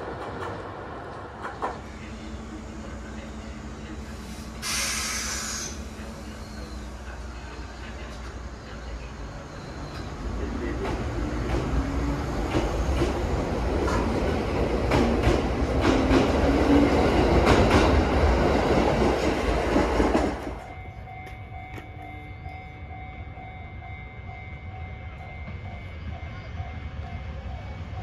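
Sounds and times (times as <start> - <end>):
train wheels clicking on rail joints: 0.0 - 1.8, 9.9 - 22.6
electric train rumbling: 0.0 - 28.0.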